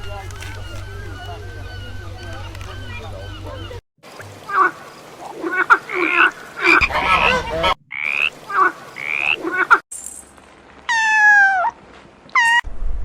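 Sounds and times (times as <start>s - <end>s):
animal croaking calls: 4.4s - 9.8s.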